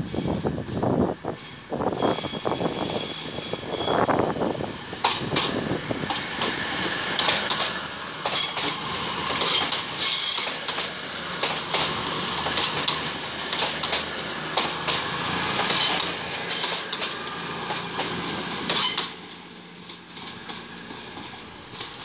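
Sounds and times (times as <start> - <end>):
diesel train rumbling past: 0.0 - 22.0
high-pitched wheel squeal: 1.4 - 4.1, 15.8 - 17.0, 18.7 - 19.2
sharp clicks from track: 7.2 - 18.1.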